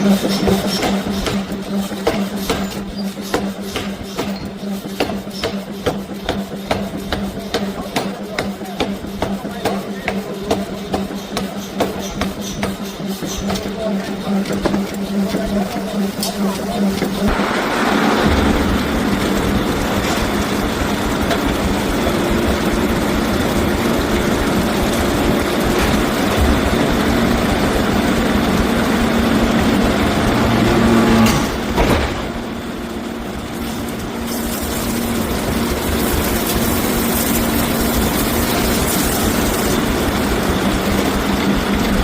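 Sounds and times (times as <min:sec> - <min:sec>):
heavy machinery running: 0:00.0 - 0:42.0.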